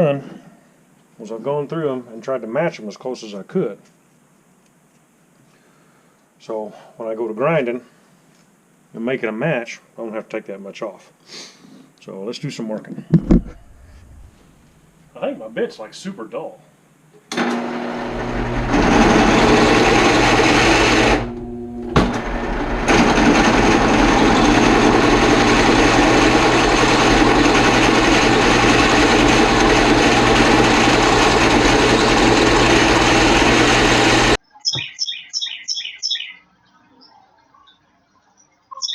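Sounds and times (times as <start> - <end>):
drill press motor hum: 13.3 - 14.4, 17.3 - 34.4
drill grinding through steel: 17.4 - 34.4.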